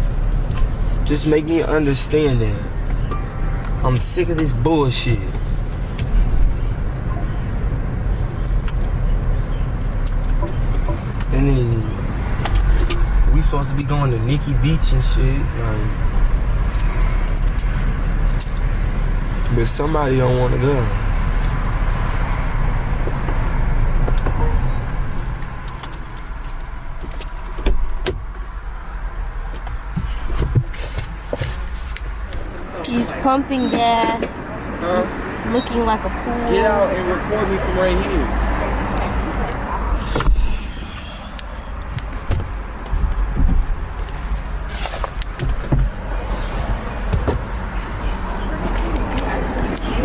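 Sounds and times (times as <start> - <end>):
car engine rumble: 0.0 - 50.0
car door clicks and knocks: 27.0 - 28.4, 40.1 - 40.5, 41.6 - 43.8, 45.4 - 46.1, 47.0 - 47.5.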